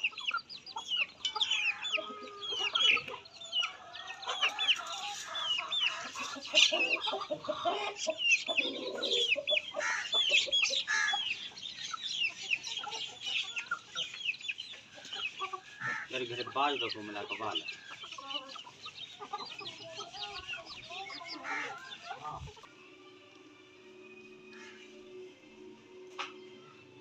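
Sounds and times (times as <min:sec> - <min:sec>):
chicks peeping: 0:00.0 - 0:22.8.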